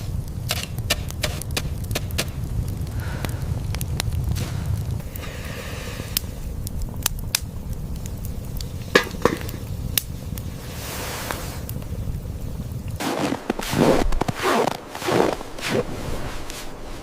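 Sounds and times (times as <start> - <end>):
sharp cracks and snaps: 0.0 - 10.5
low steady rumble: 0.0 - 17.0.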